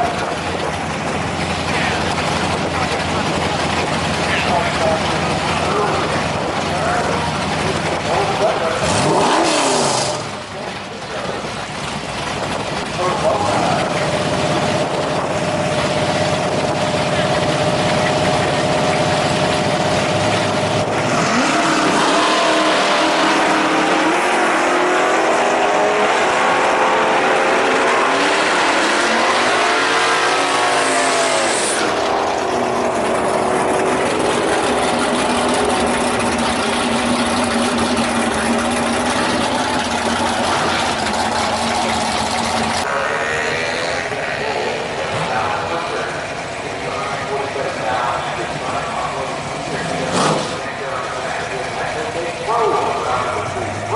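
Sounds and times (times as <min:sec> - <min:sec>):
race car engine revving: 0:00.0 - 0:53.9.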